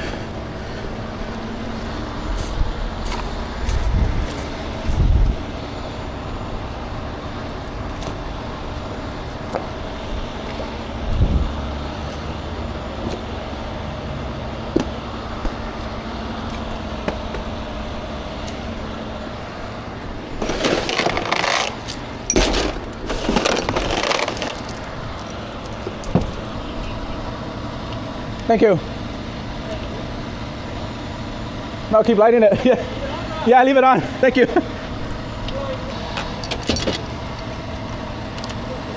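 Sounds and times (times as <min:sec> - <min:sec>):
vehicle engine idling: 0:00.0 - 0:38.9
rough clattering and scraping: 0:20.3 - 0:26.4.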